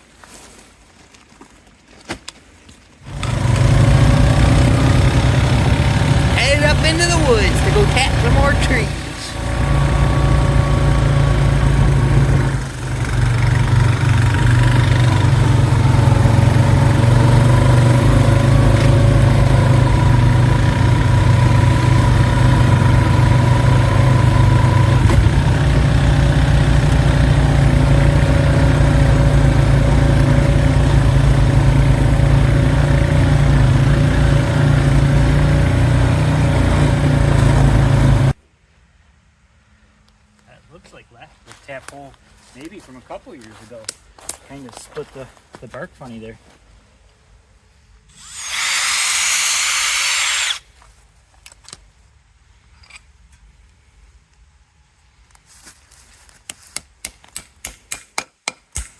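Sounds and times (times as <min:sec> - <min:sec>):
tractor engine running: 0:03.0 - 0:38.4.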